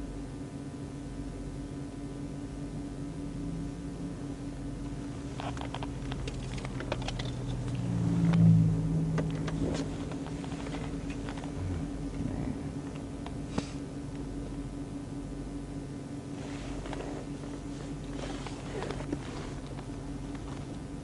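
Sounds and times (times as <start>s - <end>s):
low vehicle hum: 0.0s - 21.0s
low rumble: 5.9s - 14.8s.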